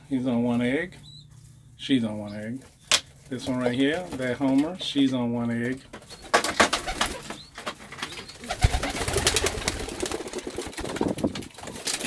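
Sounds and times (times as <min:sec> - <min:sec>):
pigeons cooing: 0:06.2 - 0:11.1
clicks and rustles: 0:10.6 - 0:12.0.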